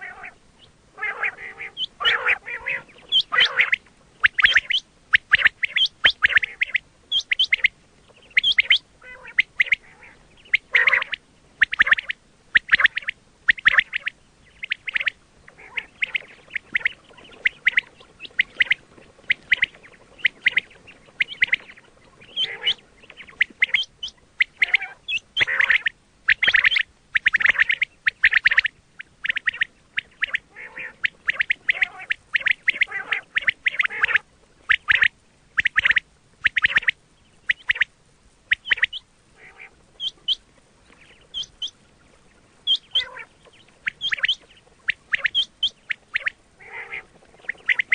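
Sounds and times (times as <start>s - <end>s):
quail calling: 0.0s - 47.9s.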